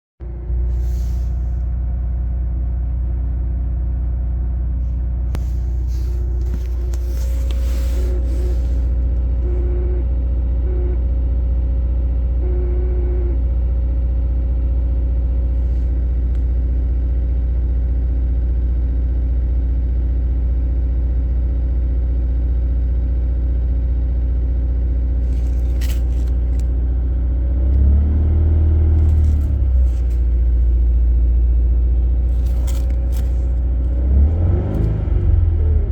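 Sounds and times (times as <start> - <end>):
car engine idling: 0.2 - 12.7, 13.6 - 18.9, 24.1 - 35.9
transmission tone: 9.4 - 11.0, 12.4 - 13.4
engine revving: 27.5 - 30.8, 32.3 - 35.9.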